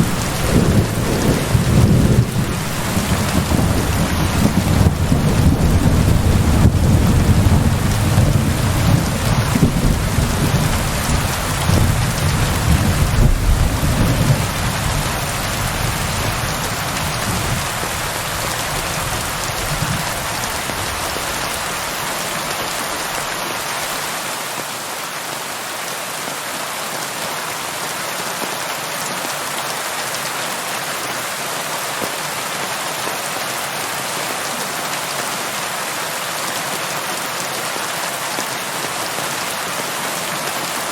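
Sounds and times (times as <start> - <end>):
thunder rolling: 0.0 - 18.2
steady rain falling: 0.0 - 40.9.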